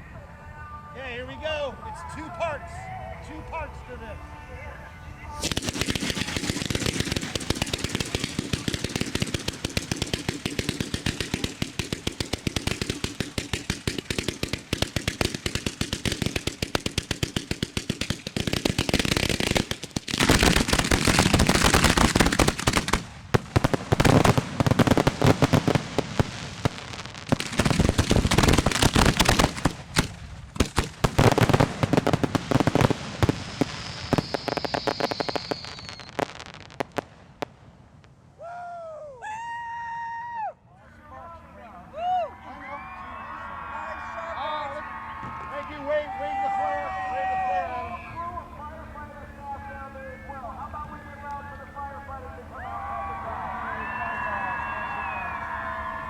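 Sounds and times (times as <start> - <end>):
fireworks bangs and crackle: 5.4 - 38.2
high falling whistle: 33.7 - 36.2, 53.7 - 56.0.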